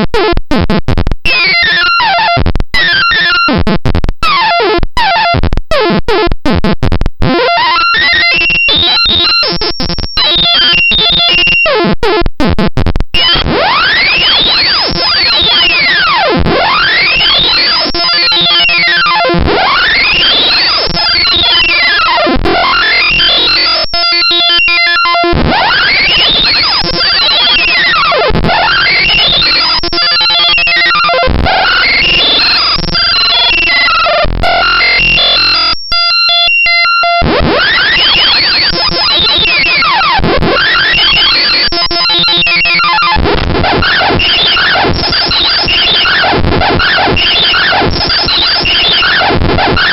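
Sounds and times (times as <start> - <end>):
distorted electronic pitch sweeps: 7.4 - 11.8, 13.2 - 49.9
buzzy pulsing tones: 25.5 - 35.7.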